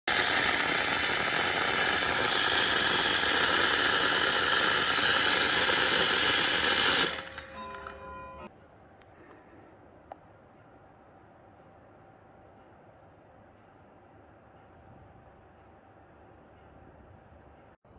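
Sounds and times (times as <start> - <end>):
coffee machine hissing: 0.1 - 8.5
faint steady tones: 0.5 - 9.7.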